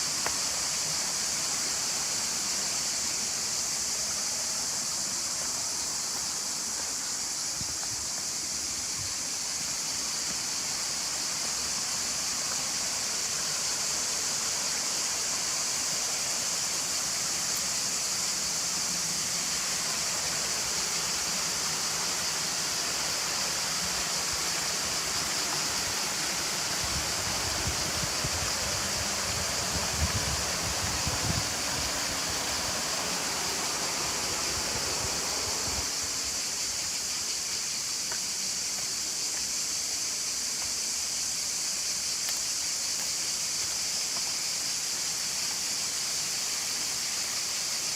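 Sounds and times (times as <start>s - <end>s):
waterfall rushing: 0.0s - 38.6s.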